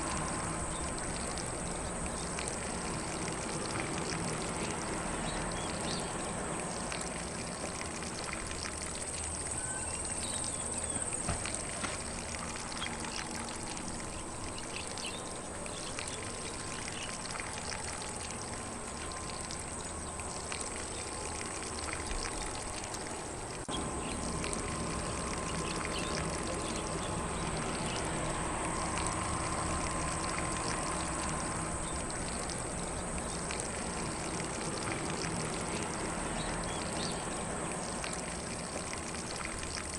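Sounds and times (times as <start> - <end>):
lawn sprinkler spraying water: 0.0 - 39.9.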